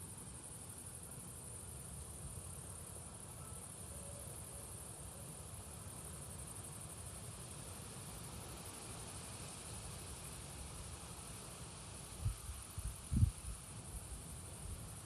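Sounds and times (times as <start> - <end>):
insects chirring: 0.0 - 15.0
wind rumble on microphone: 12.2 - 14.0.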